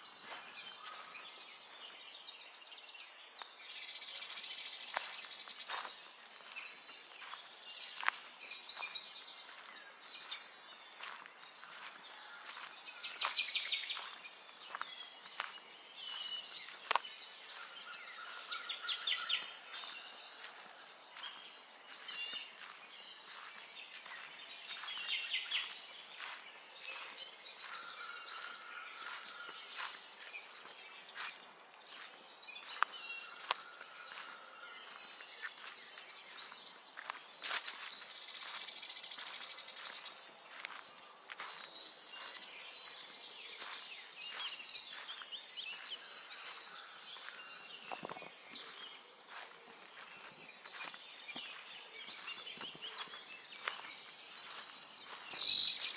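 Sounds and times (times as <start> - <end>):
songbirds chirping and singing: 0.0 - 55.9.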